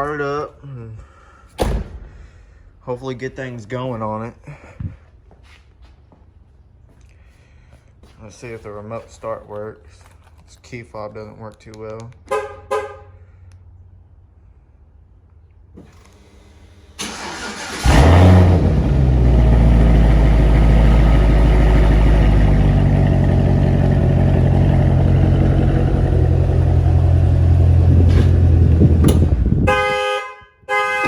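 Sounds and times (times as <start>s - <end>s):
car engine cranking and idling: 15.6s - 29.8s
car alarm horn pulsing: 29.6s - 31.0s.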